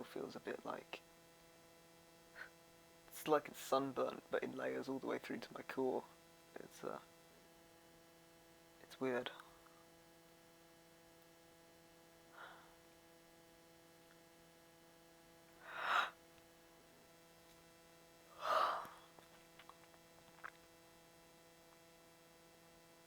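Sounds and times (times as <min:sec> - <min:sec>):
electrical hum: 0:00.0 - 0:23.0
person breathing heavily: 0:12.3 - 0:12.8, 0:15.6 - 0:16.2, 0:18.3 - 0:19.1.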